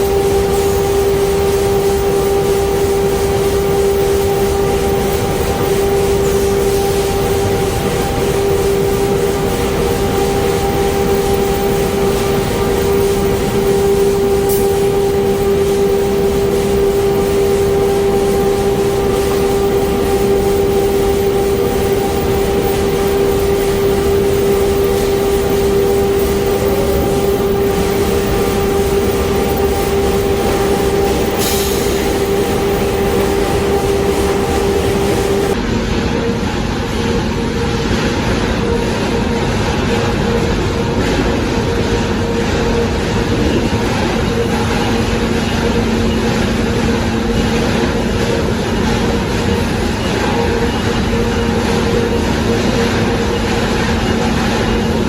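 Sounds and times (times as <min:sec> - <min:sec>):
conveyor machinery humming: 0:00.0 - 0:55.0.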